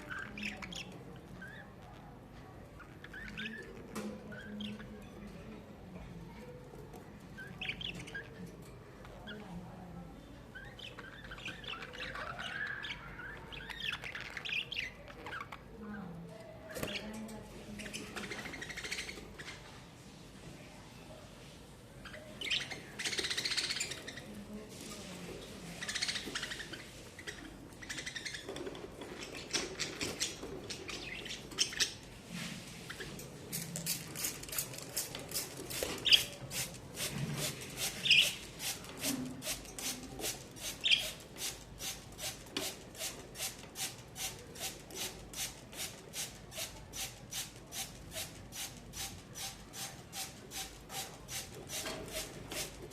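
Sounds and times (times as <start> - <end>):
budgerigars chirping: 17.8 - 19.5, 22.0 - 24.3, 25.7 - 32.0, 37.8 - 38.4, 40.7 - 41.2.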